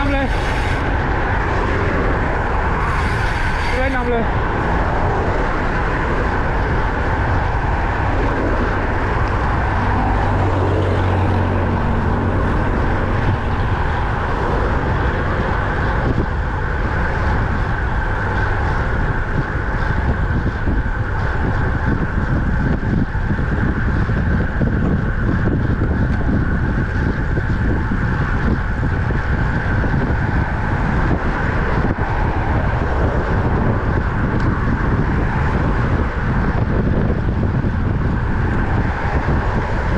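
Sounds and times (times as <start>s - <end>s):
bicycle tyre and road noise: 0.0s - 39.9s
low hum: 0.0s - 39.9s
wind buffeting microphone: 0.0s - 39.9s.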